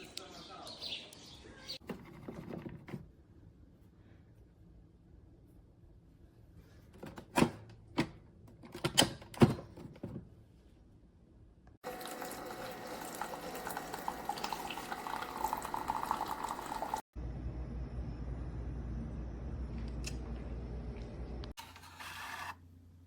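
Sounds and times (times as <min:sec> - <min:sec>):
water pouring into cup: 0:11.8 - 0:17.0
coffee maker humming: 0:11.8 - 0:22.5.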